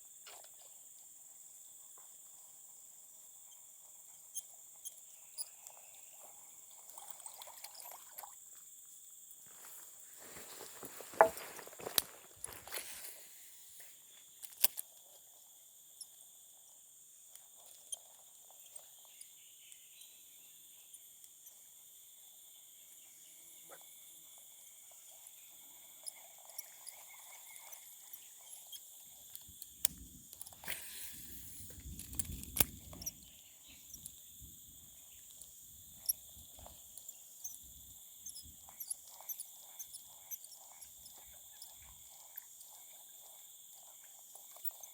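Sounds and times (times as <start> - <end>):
insects chirring: 0.1 - 44.9
rustling and knocks: 9.5 - 13.1
small clicks: 14.4 - 15.0, 27.6 - 34.2.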